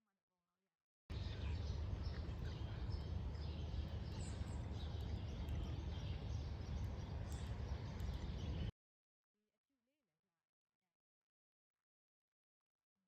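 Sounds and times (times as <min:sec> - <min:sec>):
low rumble of outdoor noise: 0:01.1 - 0:08.7
small birds chirping: 0:01.1 - 0:08.7.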